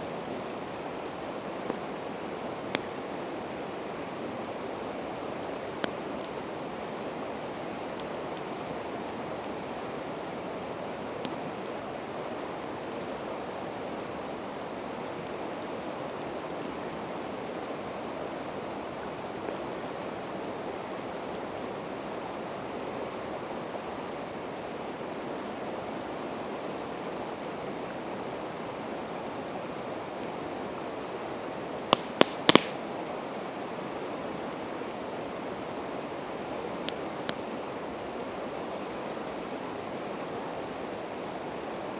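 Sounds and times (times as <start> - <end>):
campfire wood popping: 18.8 - 21.9, 31.9 - 33.0.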